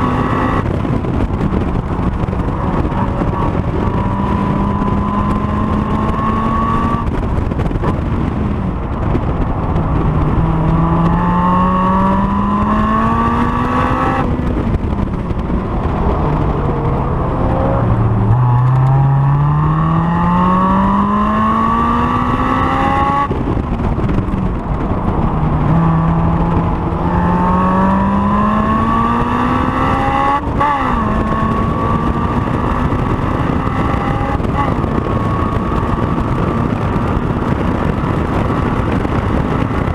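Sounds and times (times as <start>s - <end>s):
car engine revving through gears: 0.0s - 7.2s, 9.2s - 39.9s.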